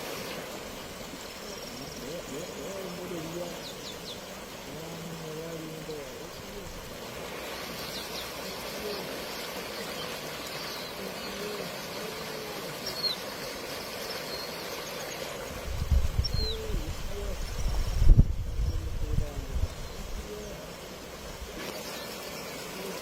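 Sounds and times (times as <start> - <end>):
birds chirping: 0.0 - 23.0
outdoor background hiss: 0.0 - 23.0
wind buffeting microphone: 15.5 - 20.2.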